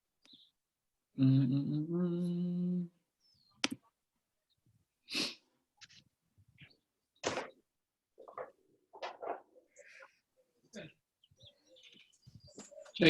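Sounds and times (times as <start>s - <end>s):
person humming: 1.2s - 3.0s.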